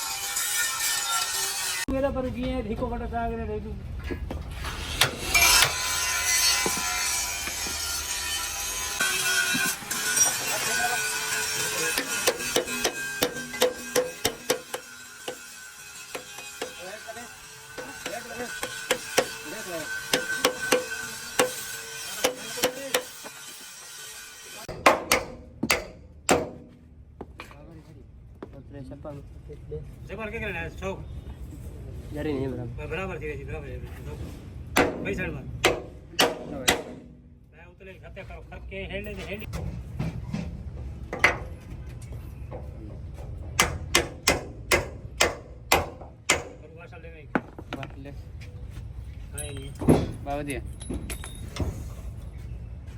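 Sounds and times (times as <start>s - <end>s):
hammer blows: 4.3s - 27.4s, 34.7s - 37.5s, 43.4s - 46.7s
ringing hammer strikes: 5.3s - 27.0s, 34.8s - 37.4s, 43.6s - 46.7s.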